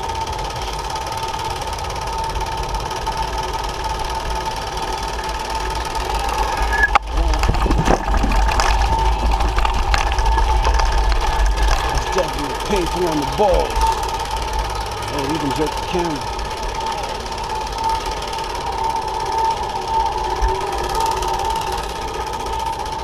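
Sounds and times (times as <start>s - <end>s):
motorized bicycle engine buzzing: 0.0s - 23.0s
low rumble: 4.0s - 18.0s.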